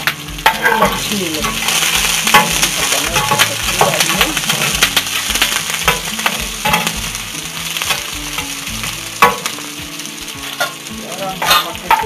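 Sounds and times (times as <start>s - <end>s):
vegetables sizzling in hot oil: 0.0s - 12.0s
metal spatula scraping a pot: 10.5s - 12.0s.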